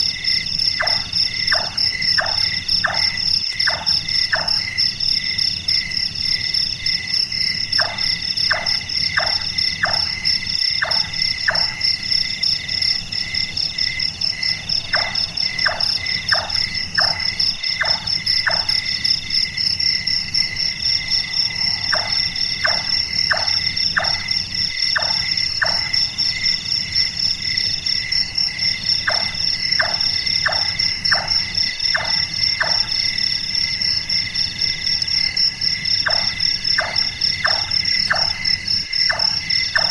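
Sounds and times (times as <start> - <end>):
night insects trilling: 0.0 - 39.9
nightjar knocking calls: 10.8 - 11.8, 14.9 - 18.8, 39.0 - 39.9.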